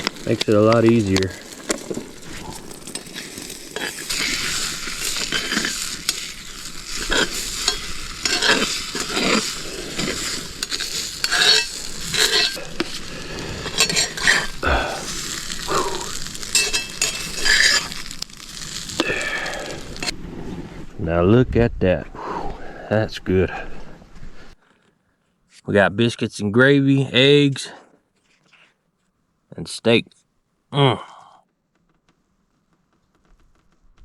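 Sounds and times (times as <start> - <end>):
eggs sizzling in a pan: 0.0 - 20.2
utensil scraping a pan: 0.0 - 20.2.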